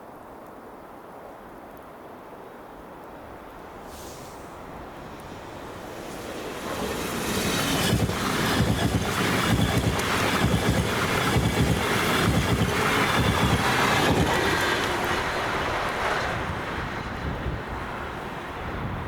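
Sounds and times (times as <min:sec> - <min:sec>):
train passing close by: 0:03.4 - 0:19.0.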